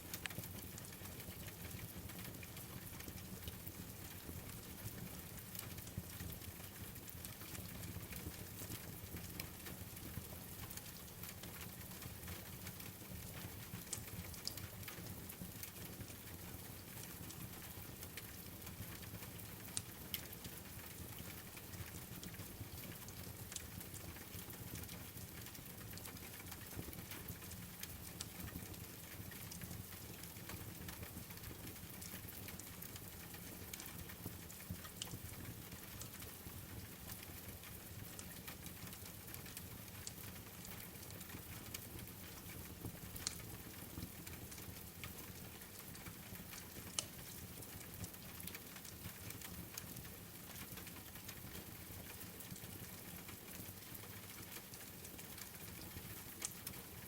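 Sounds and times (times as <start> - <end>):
rain patter: 0.0 - 57.0
wood fire crackling: 12.6 - 16.2, 19.7 - 57.0.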